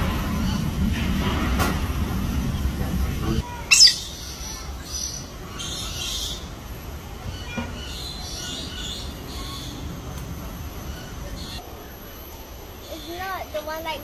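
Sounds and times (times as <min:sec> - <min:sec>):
parrot screeching: 0:03.6 - 0:04.6
high bird chirps: 0:03.7 - 0:06.5.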